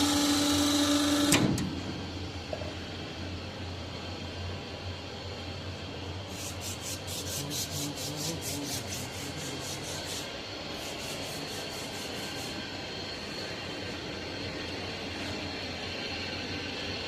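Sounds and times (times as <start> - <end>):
bandsaw motor hum: 0.0 - 1.7.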